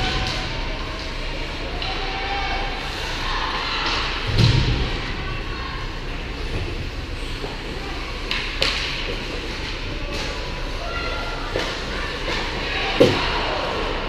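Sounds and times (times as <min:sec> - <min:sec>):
background chatter: 0:00.0 - 0:14.0
stick and puck clacks: 0:08.2 - 0:10.5, 0:11.5 - 0:13.2.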